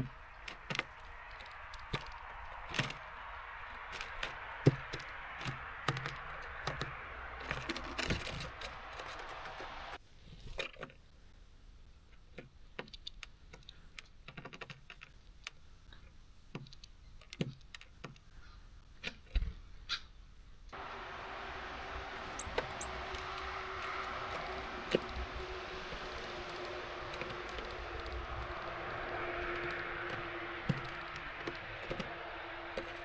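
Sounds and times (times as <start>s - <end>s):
beaks tapping on feeder: 0.1s - 9.9s, 20.8s - 33.0s
rain hiss: 1.2s - 10.0s, 20.8s - 30.6s.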